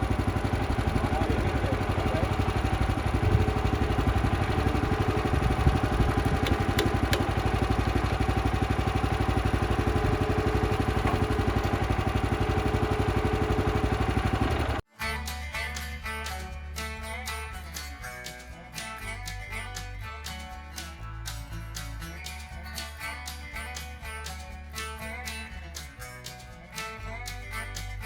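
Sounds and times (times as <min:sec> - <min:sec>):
small gasoline engine idling: 0:00.0 - 0:14.8
acoustic guitar music: 0:00.0 - 0:28.0.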